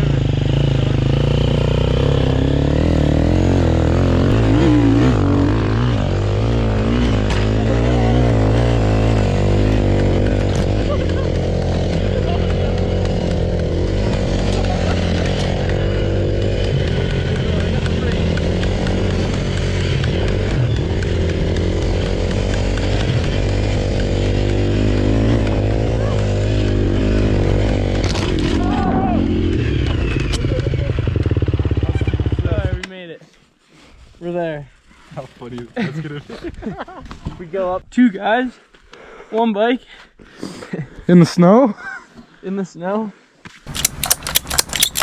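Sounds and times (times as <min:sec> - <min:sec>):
dirt bike engine revving: 0:00.0 - 0:32.8.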